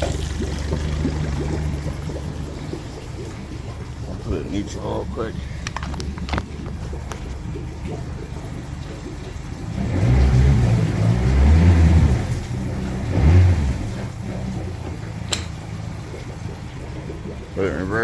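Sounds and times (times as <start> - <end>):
outboard engine revving: 0.0 - 18.0
sharp click: 15.3 - 15.6.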